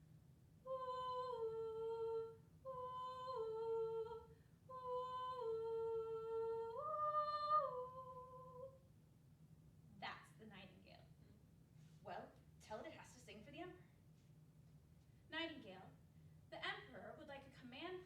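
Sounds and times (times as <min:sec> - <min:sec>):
woman humming a slow tune: 0:00.6 - 0:08.8.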